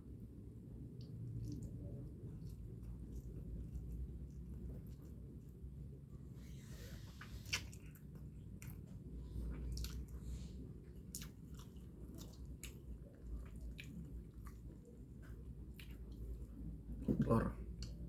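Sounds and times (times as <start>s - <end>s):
chewing with wet mouth clicks: 0.8s - 5.9s, 7.2s - 16.7s, 17.7s - 18.0s.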